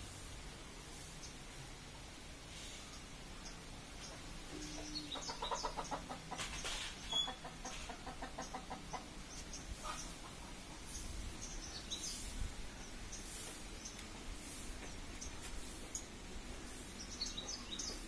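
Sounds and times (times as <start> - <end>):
bird pulsed low notes: 2.8 - 5.6.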